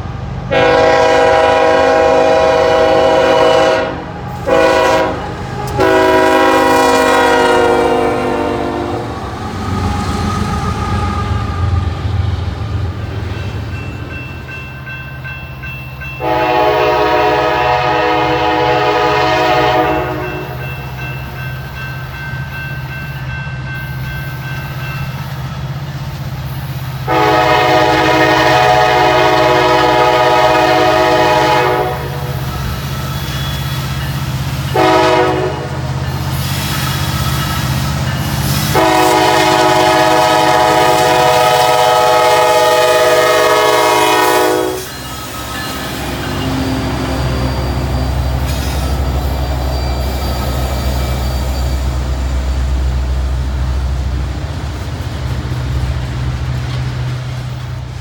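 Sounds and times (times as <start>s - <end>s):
low train rumble: 0.0s - 58.0s
locomotive air horn blasts: 0.5s - 9.2s, 16.2s - 20.6s, 27.0s - 32.4s, 34.7s - 35.9s, 38.5s - 45.0s.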